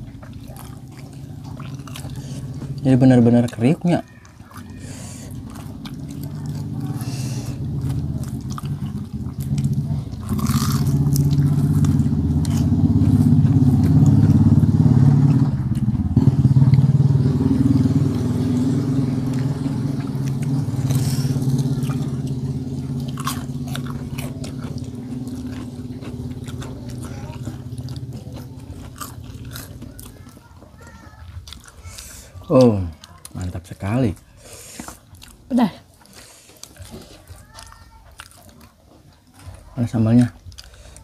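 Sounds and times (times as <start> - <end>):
biting and chewing crispy food: 0.0 - 41.0.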